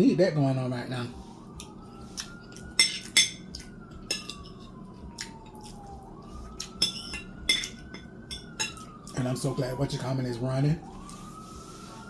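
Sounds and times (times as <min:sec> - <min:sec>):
distant siren wailing: 0:00.0 - 0:12.0
cutlery and dishes clinking: 0:02.8 - 0:04.7, 0:06.6 - 0:09.4.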